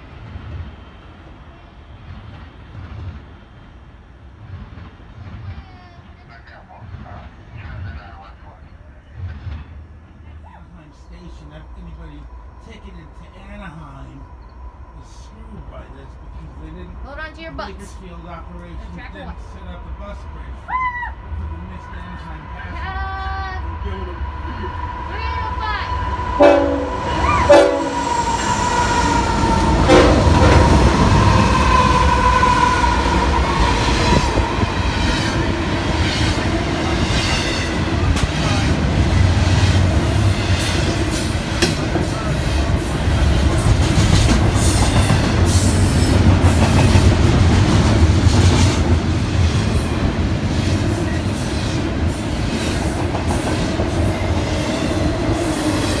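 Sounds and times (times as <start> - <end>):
freight train rumbling: 0.0 - 56.0
locomotive horn: 26.4 - 28.6, 29.3 - 30.6.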